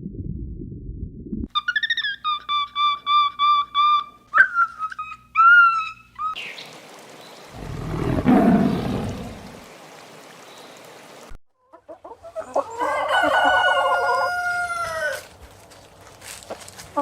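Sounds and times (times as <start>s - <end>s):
rooster clucking and crowing: 11.7s - 15.3s.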